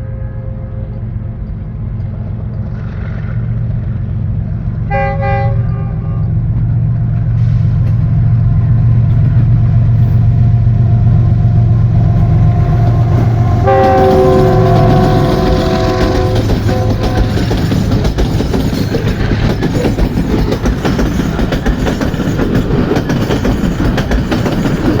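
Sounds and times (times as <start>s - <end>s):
train horn blasts: 0.0s - 1.3s, 4.9s - 6.4s, 10.8s - 17.8s
train locomotive rumbling: 0.0s - 25.0s.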